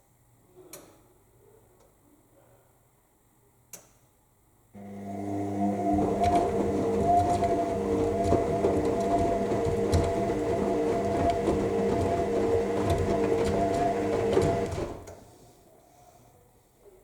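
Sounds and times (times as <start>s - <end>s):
washing machine motor humming: 4.8s - 15.3s
water sloshing: 5.4s - 15.1s
laundry knocking in drum: 5.8s - 15.1s.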